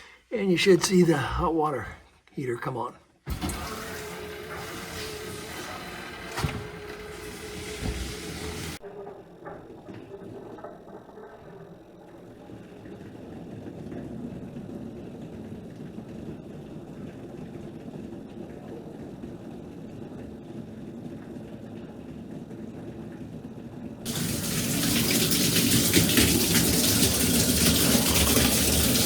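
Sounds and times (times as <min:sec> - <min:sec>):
water rushing in plumbing: 0:03.3 - 0:21.9, 0:24.0 - 0:29.0
shower spraying: 0:03.5 - 0:08.8, 0:24.1 - 0:29.0.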